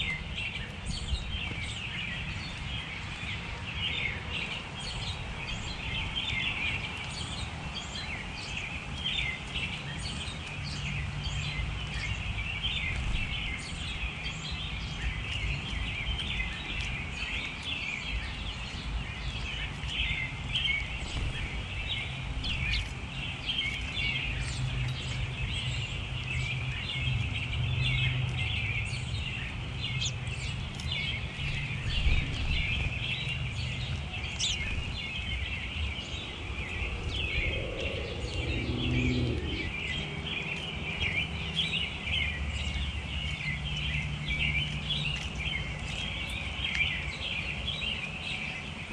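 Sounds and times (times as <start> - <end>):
songbirds chirping and twittering: 0.0 - 48.9
low steady hum: 33.6 - 41.7.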